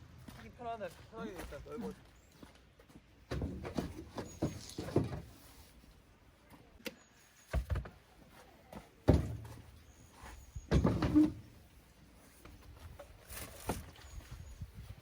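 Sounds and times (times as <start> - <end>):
camping gear knocking and clunking: 3.2 - 5.4, 7.5 - 11.7, 12.4 - 14.4.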